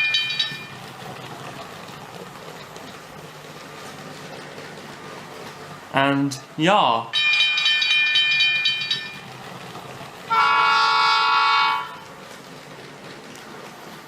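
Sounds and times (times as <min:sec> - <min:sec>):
electronic train horn: 0:10.3 - 0:12.1.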